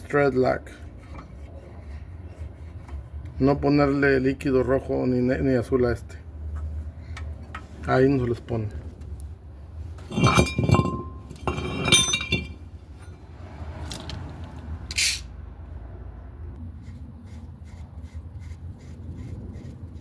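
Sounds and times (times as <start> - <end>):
metal parts clinking: 10.0 - 13.2, 14.9 - 15.2.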